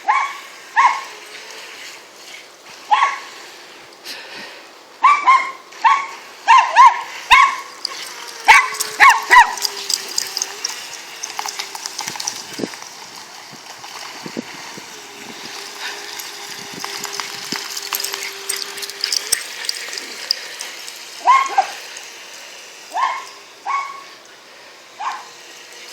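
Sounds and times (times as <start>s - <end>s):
dogs barking: 5.0s - 11.5s, 17.8s - 22.0s, 22.9s - 24.1s, 25.0s - 25.4s.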